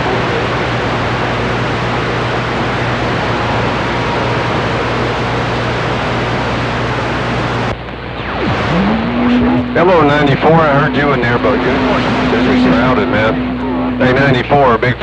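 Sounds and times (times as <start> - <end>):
radio static and hiss: 7.4 - 15.0
low hum: 8.0 - 15.0
whistle falling in pitch: 8.3 - 14.6.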